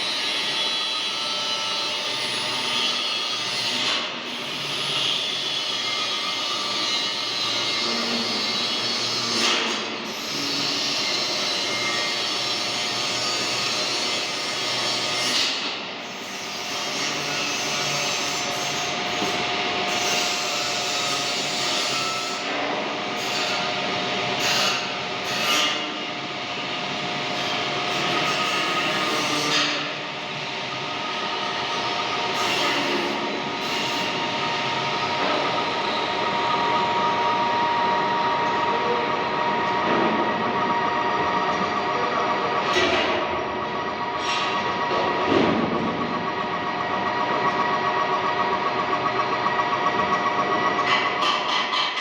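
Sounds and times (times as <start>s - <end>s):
metal lathe running: 26.6s - 52.0s.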